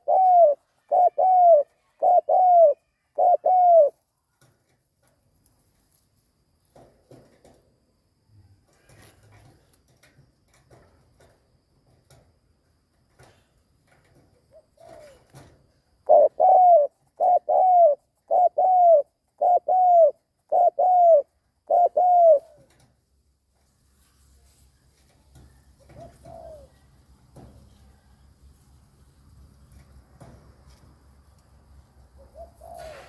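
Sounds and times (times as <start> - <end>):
dove cooing: 0.0 - 4.0, 14.5 - 22.8, 25.8 - 26.9, 32.2 - 33.0
faint scattered ticks: 3.9 - 16.2.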